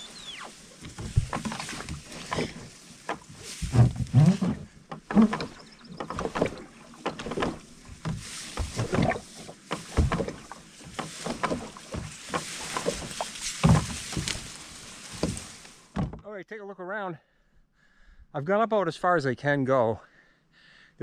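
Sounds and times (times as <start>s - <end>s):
kayak paddle splashes and knocks: 0.6s - 16.2s.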